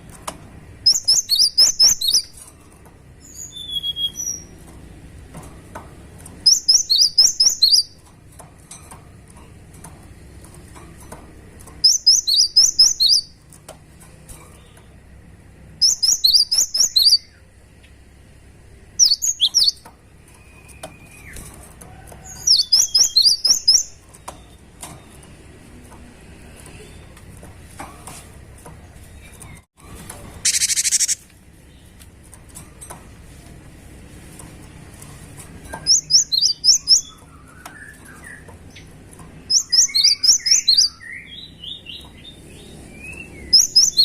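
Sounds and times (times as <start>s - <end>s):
bird singing rapid high chattering: 0.8s - 2.4s, 3.2s - 4.6s, 6.4s - 8.1s, 11.8s - 13.4s, 15.7s - 17.5s, 18.9s - 19.9s, 22.4s - 24.5s, 30.4s - 32.0s, 35.8s - 44.0s.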